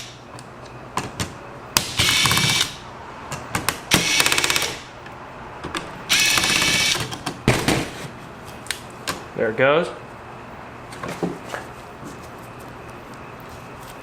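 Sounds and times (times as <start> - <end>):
electric screwdriver buzzing: 2.0 - 2.8, 6.1 - 7.0.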